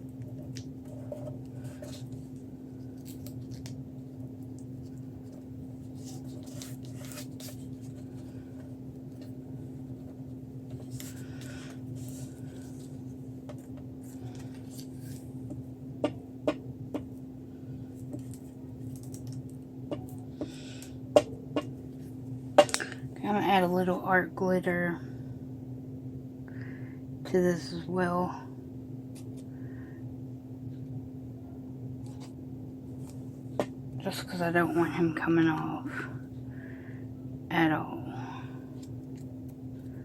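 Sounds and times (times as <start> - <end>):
steady electrical hum: 0.0 - 40.0
paper rustling: 4.8 - 9.4, 10.7 - 13.0, 13.6 - 15.3.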